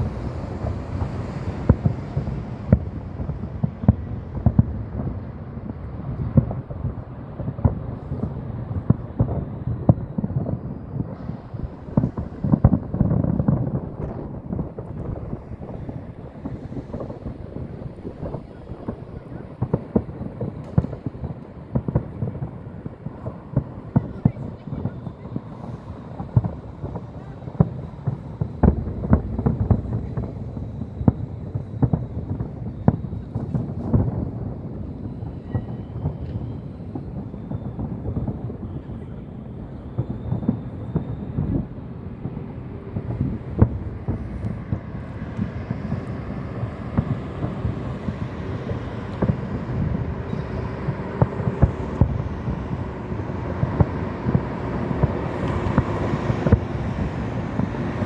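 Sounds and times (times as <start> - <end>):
steady low rumble: 0.0 - 35.2
fireworks booming: 0.0 - 58.0
low rumble: 26.6 - 33.2.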